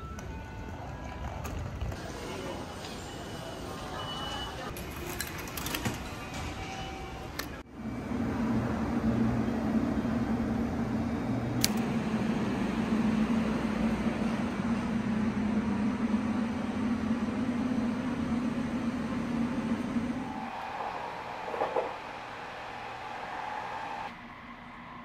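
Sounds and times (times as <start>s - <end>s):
train mechanical hum: 0.0s - 25.0s
rush of air: 20.2s - 24.1s.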